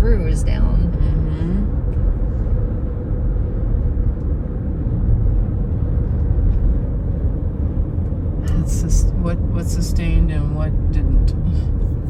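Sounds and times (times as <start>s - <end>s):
tyre and engine rumble: 0.0s - 12.0s.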